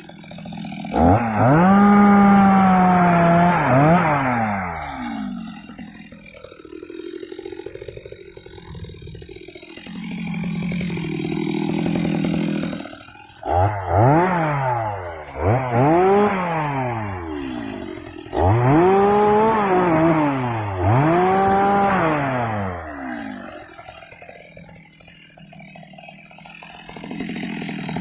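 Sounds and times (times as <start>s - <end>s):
chainsaw revving: 0.0s - 28.0s.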